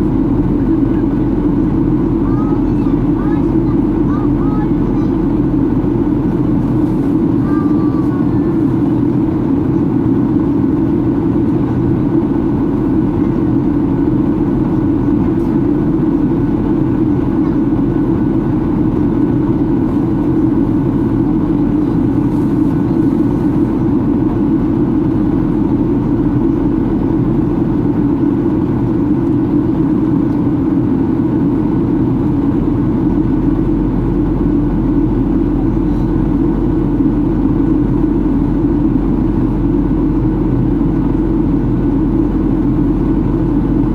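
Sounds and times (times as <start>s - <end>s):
airplane cabin engine drone: 0.0s - 43.9s
deep rumble: 0.0s - 43.9s.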